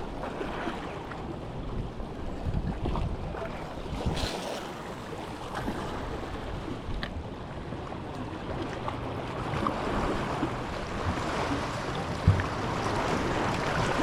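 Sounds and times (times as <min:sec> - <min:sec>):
wind on microphone: 0:00.0 - 0:07.3
waves washing: 0:00.0 - 0:14.0.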